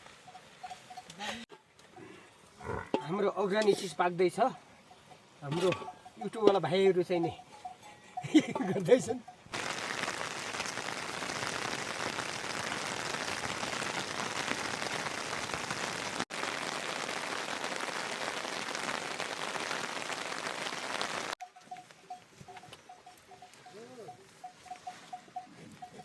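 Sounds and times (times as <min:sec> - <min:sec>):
heavy rain pattering: 0:09.5 - 0:21.4.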